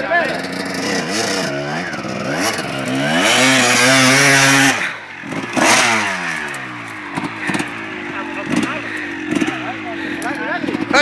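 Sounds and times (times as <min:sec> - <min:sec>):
motocross bike engines revving: 0:00.0 - 0:11.0.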